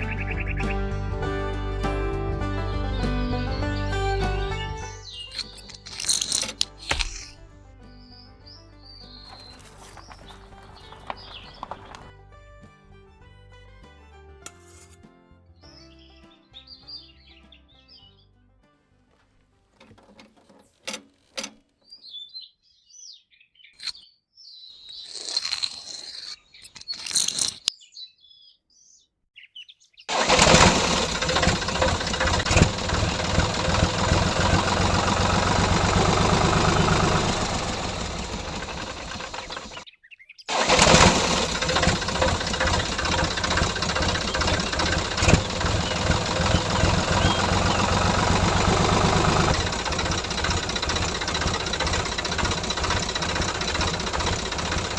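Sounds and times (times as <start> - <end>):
small tractor engine running: 0.0 - 7.5, 9.2 - 12.2, 30.1 - 39.8, 40.5 - 54.9
birds chirping: 0.0 - 12.1, 26.2 - 54.9
clicks: 5.3 - 7.4, 9.3 - 12.1.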